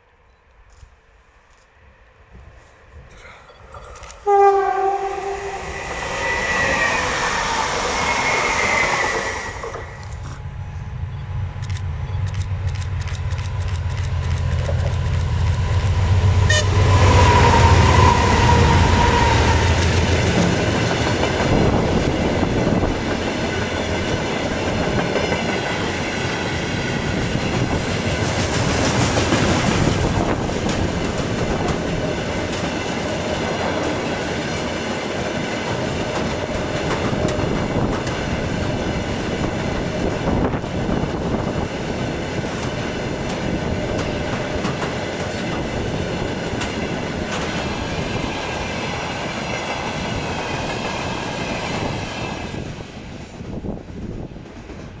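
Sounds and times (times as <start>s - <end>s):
deep train engine hum: 0.0s - 55.0s
train horn tone: 4.2s - 7.1s, 16.3s - 20.0s
train wheels clattering on rails: 11.6s - 52.9s.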